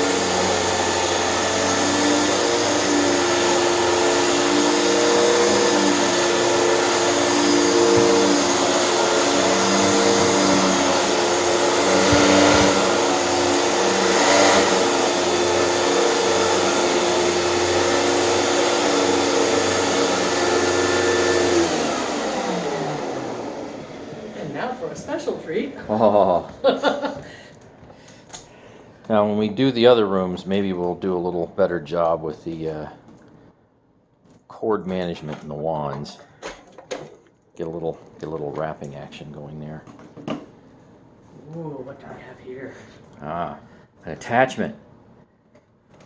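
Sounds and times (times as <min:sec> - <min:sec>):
vacuum motor winding down: 0:00.0 - 0:25.6
vacuum cleaner running: 0:00.0 - 0:27.4.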